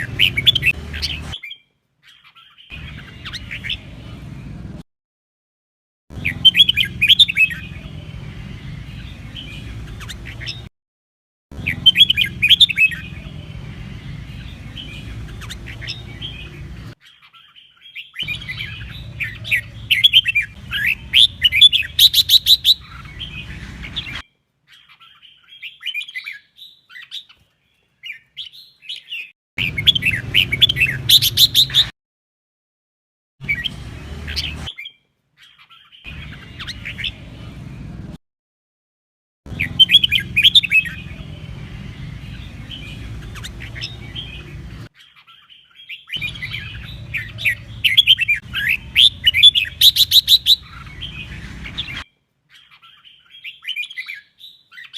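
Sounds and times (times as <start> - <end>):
bird warbling chirps: 0.0 - 4.0, 6.2 - 8.0, 11.6 - 13.5, 14.2 - 27.4, 28.1 - 31.9, 39.5 - 41.4, 42.2 - 54.9.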